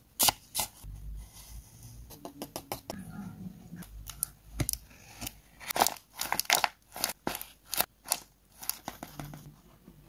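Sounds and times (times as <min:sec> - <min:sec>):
paper crinkling: 0:05.1 - 0:09.5.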